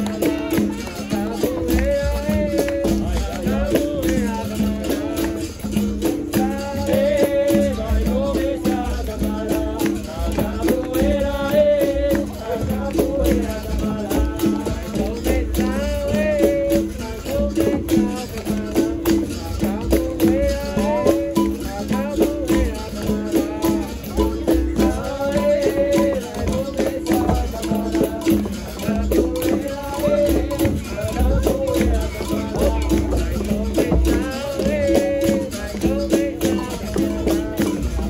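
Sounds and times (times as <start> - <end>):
berimbau rhythm: 0.0 - 38.0
hand percussion: 0.0 - 38.0
voices singing: 0.0 - 38.0.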